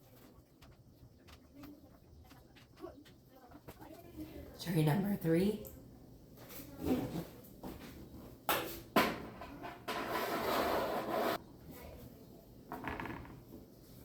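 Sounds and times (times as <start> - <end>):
scraping rub: 9.9 - 11.4.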